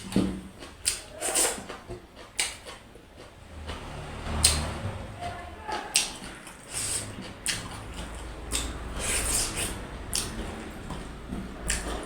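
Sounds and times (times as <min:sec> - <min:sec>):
wet lip smacking: 0:00.0 - 0:03.3, 0:05.7 - 0:12.0
lip and tongue clicks: 0:00.0 - 0:04.7, 0:05.7 - 0:12.0
person chewing food: 0:00.0 - 0:12.0.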